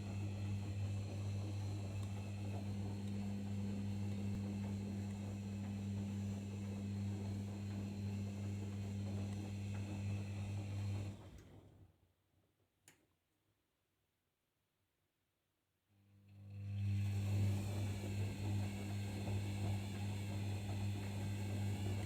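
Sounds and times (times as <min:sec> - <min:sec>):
washing machine humming: 0:00.0 - 0:11.6, 0:16.5 - 0:22.0.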